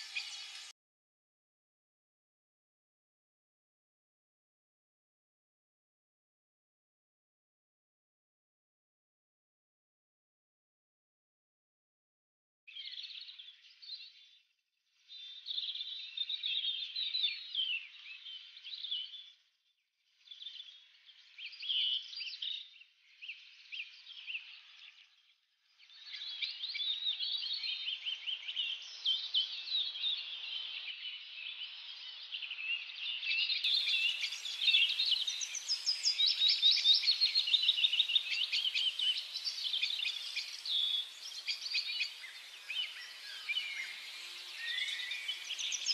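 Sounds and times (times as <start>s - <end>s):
birds chirping and chattering: 33.7s - 45.9s.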